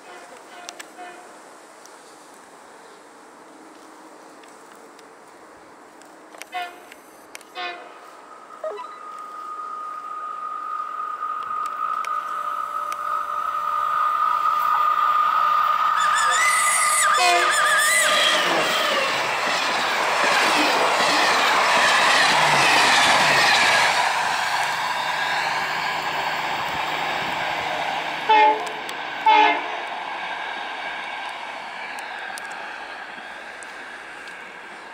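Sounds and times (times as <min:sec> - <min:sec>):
train horn blasts: 0:00.0 - 0:01.3, 0:06.5 - 0:08.0, 0:16.0 - 0:17.6, 0:28.3 - 0:29.8
train rumbling past: 0:00.0 - 0:34.9.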